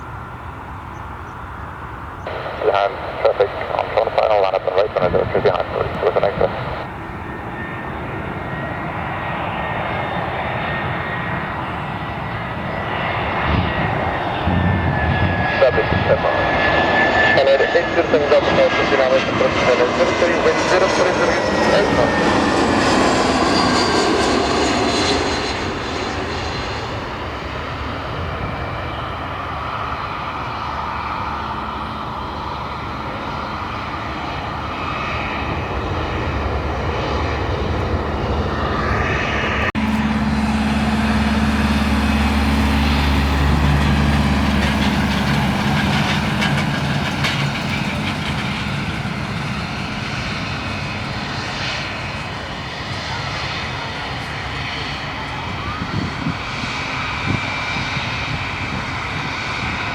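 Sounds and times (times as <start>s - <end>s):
airliner engines: 0.0s - 59.9s
deep heavy rumble: 13.1s - 28.8s, 35.5s - 51.2s
low hum: 35.6s - 50.5s.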